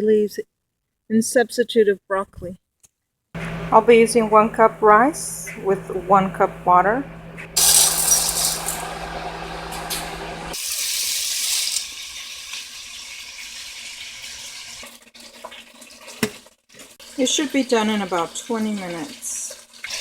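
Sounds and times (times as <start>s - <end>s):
steady low hum: 3.4s - 10.6s
tap water running into container: 7.6s - 20.0s.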